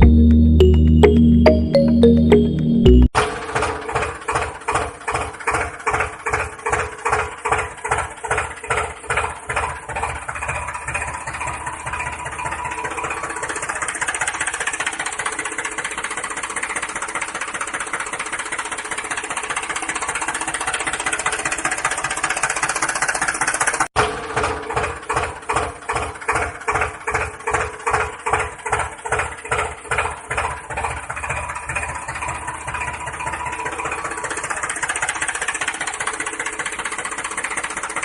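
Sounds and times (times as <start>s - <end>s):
tractor engine chugging: 3.6s - 38.0s.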